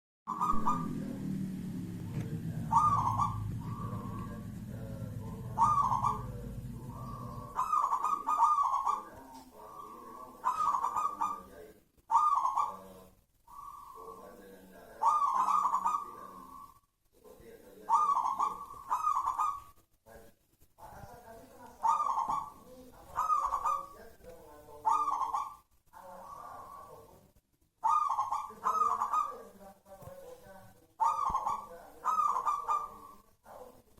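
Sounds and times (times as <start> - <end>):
low hum: 0.3 - 7.9
dove cooing: 0.3 - 16.8, 17.7 - 19.7, 20.8 - 27.2, 27.8 - 33.6.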